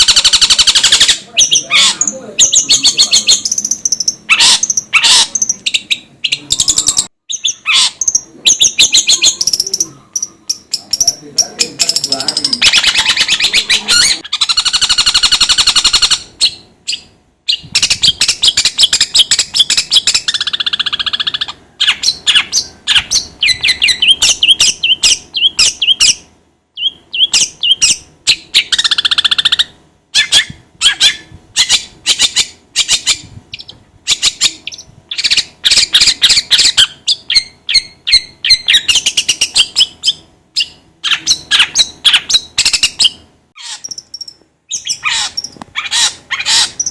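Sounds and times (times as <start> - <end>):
shrike singing chattering phrases: 0.0 - 16.2.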